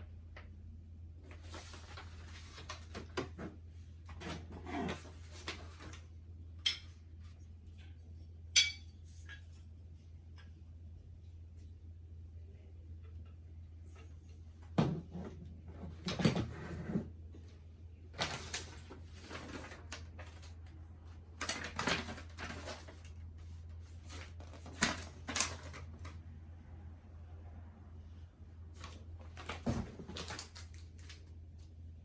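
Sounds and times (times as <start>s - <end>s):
packaging knocks and rustles: 29.2s - 31.2s.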